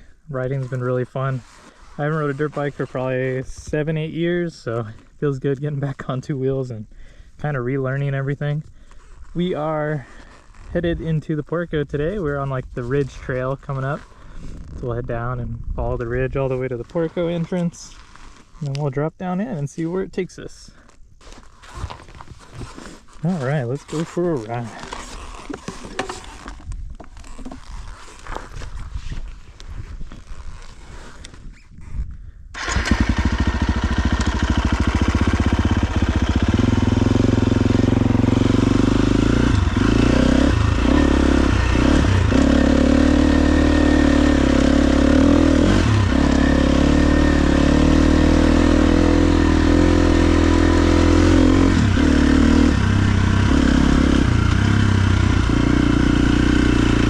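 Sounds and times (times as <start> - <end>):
dirt bike engine revving: 32.6 - 57.0.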